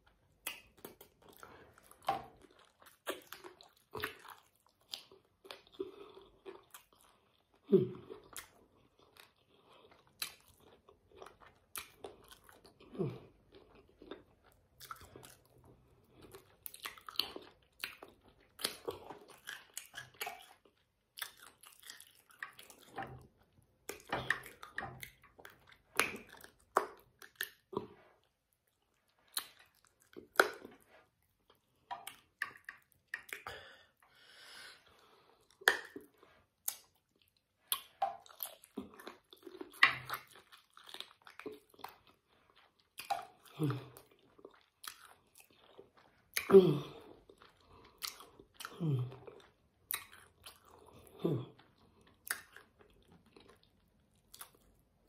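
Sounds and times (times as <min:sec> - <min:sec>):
wet mouth clicks: 0:00.3 - 0:01.4, 0:23.9 - 0:28.0, 0:29.2 - 0:30.9, 0:31.8 - 0:33.7, 0:35.5 - 0:40.6, 0:49.9 - 0:50.8, 0:52.2 - 0:52.8.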